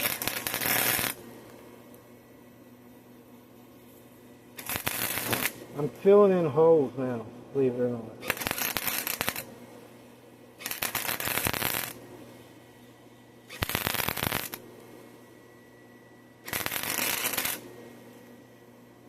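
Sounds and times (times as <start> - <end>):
welding arc crackling: 0.0 - 1.6, 3.9 - 6.8, 8.2 - 9.6, 10.6 - 12.2, 13.5 - 14.6, 16.4 - 17.8.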